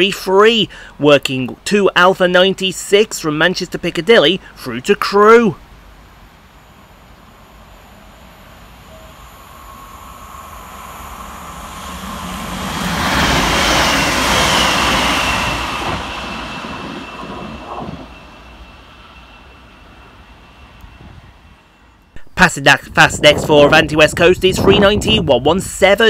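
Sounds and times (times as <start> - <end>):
steady high whine: 0.0 - 26.0
train rail and wheel noise: 5.6 - 25.8.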